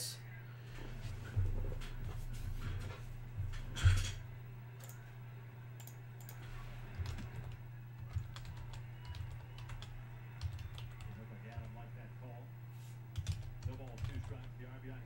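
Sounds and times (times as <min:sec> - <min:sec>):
low electrical hum: 0:00.0 - 0:15.0
keyboard keystrokes: 0:05.8 - 0:11.7, 0:13.2 - 0:14.5.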